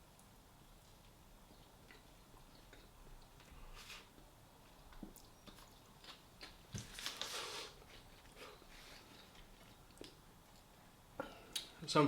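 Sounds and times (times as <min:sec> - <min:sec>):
person chewing a wrap: 0:04.9 - 0:10.8.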